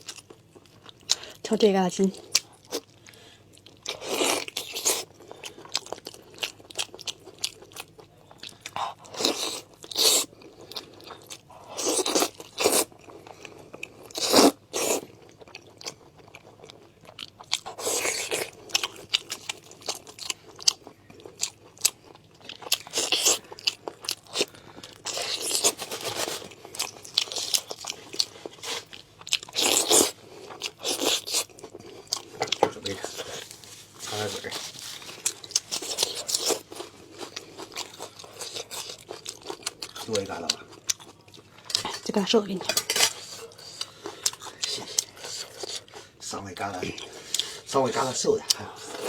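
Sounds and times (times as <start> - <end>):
close chewing and biting: 2.1 - 49.0.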